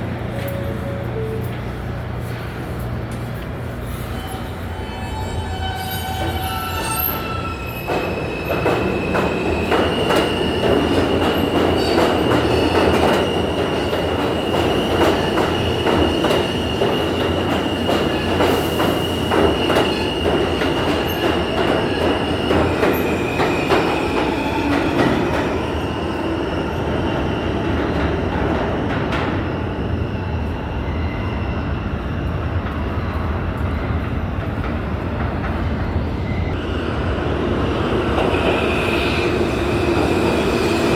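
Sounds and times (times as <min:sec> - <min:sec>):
subway train rumbling: 0:00.0 - 0:40.9
high-pitched wheel squeal: 0:04.0 - 0:08.3.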